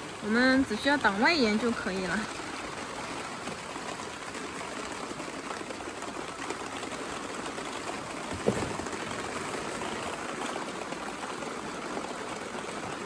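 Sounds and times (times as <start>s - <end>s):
heavy rain splashing: 0.0s - 13.0s
short thump: 8.3s - 9.3s.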